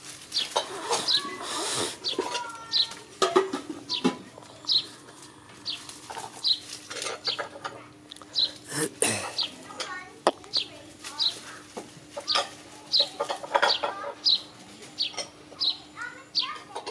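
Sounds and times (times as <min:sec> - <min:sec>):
paws rustling through dry leaves: 0:00.0 - 0:01.6, 0:04.8 - 0:07.3, 0:10.5 - 0:13.3
bird high chirps: 0:03.9 - 0:05.0.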